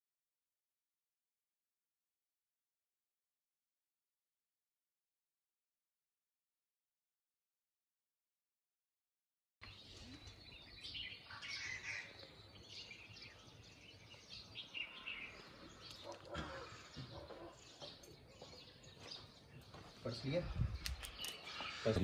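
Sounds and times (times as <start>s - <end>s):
small birds chirping: 9.6s - 22.0s.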